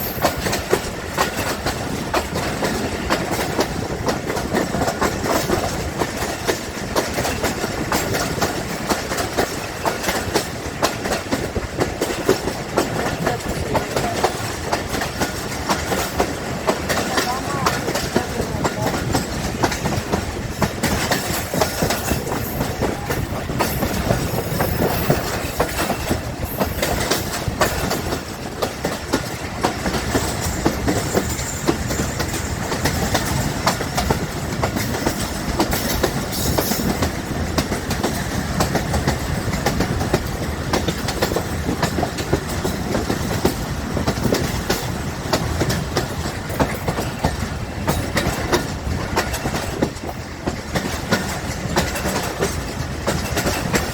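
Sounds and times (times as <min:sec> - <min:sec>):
train wheels clattering over rail joints: 0:00.0 - 0:53.9.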